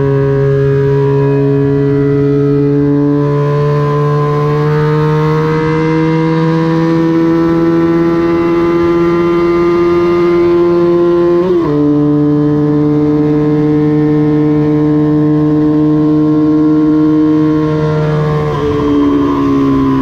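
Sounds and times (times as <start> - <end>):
motorcycle engine under load: 0.0 - 20.0.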